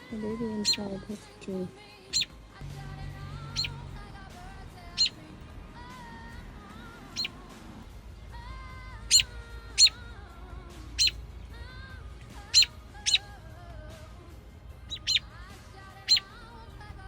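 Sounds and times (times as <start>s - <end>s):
robin sharp alarm calls: 0.0s - 1.1s, 2.1s - 2.4s, 3.4s - 3.9s, 4.8s - 5.2s, 7.0s - 7.4s, 9.0s - 10.1s, 10.9s - 11.2s, 12.3s - 13.3s, 14.8s - 15.3s, 16.0s - 16.4s.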